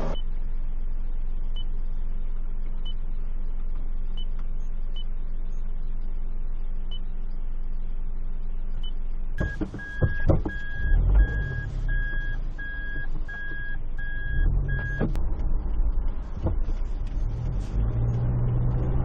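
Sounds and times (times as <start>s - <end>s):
low engine drone: 0.0s - 19.0s
car warning beeper: 9.4s - 15.2s.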